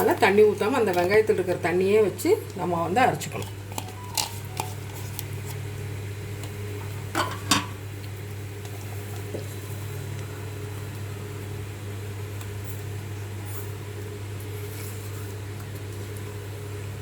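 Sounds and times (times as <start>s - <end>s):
low electrical hum: 0.0s - 17.0s
kitchen utensils knocking: 7.2s - 7.8s.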